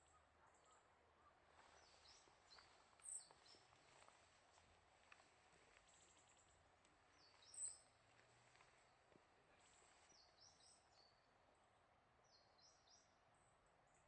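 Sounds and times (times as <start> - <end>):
small bird chirps: 7.2 - 7.9.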